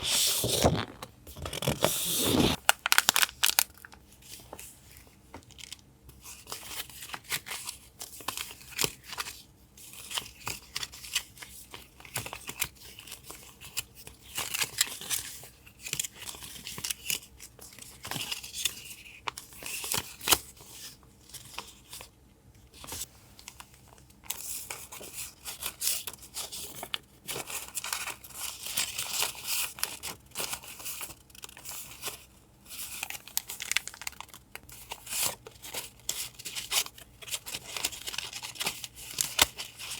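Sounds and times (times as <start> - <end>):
paper rustling and tearing: 0.0 - 3.6.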